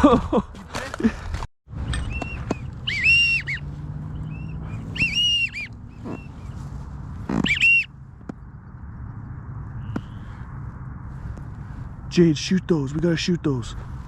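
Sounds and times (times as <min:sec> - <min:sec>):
duck whistles: 0:02.0 - 0:06.5, 0:07.3 - 0:07.9.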